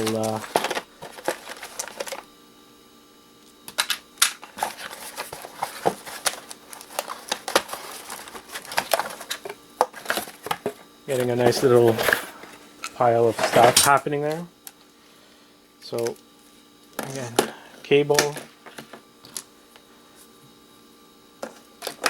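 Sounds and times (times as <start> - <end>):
small parts clicking and clattering: 0.0 - 2.2, 3.7 - 10.7.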